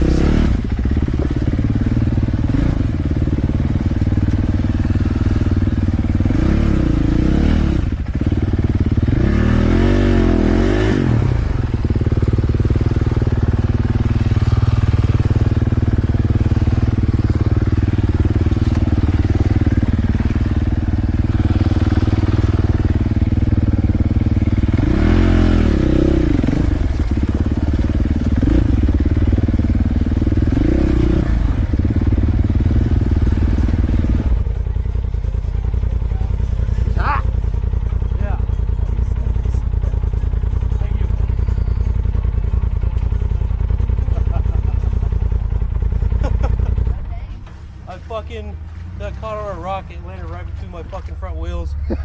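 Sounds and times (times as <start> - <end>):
off-road vehicle engine revving: 0.0 - 52.0.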